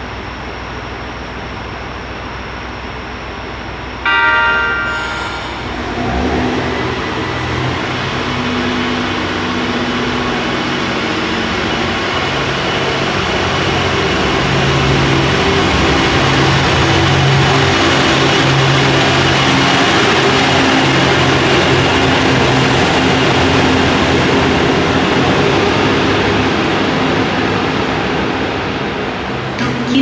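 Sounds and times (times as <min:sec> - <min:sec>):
train horn: 0:04.1 - 0:06.7
diesel engine droning: 0:04.1 - 0:30.0.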